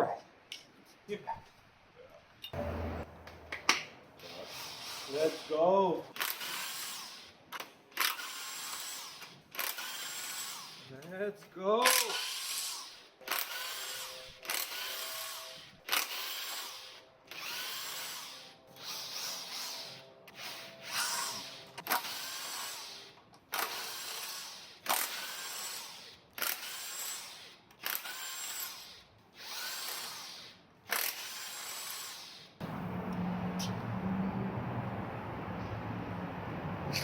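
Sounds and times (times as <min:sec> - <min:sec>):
power drill spinning bolts: 0:04.2 - 0:10.9, 0:11.8 - 0:32.5.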